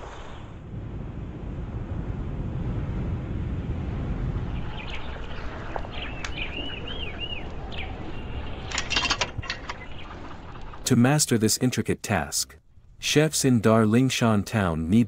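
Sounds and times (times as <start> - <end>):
low outdoor rumble: 0.0 - 15.0
small bird chirping: 4.5 - 8.8
sharp clatter: 8.5 - 10.8.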